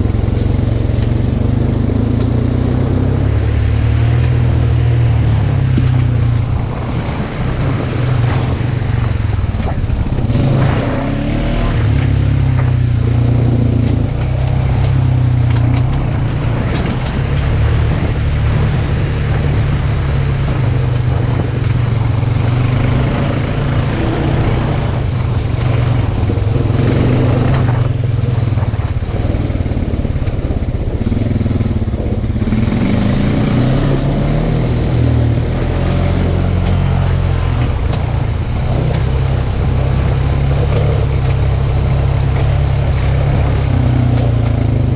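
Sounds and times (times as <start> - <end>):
utility vehicle engine running: 0.0 - 44.9.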